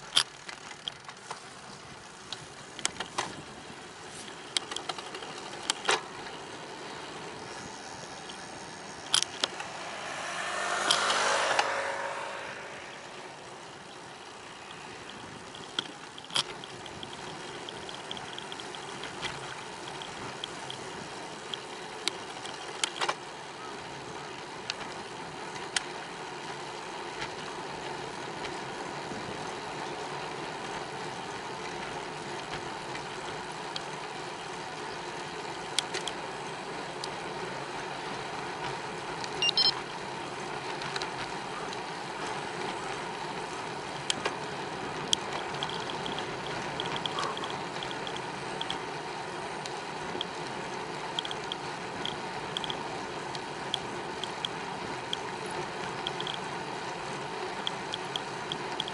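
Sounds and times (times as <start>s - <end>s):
bicycle rolling: 0.0s - 58.9s
rapid light ticking: 15.0s - 22.9s, 44.9s - 58.9s.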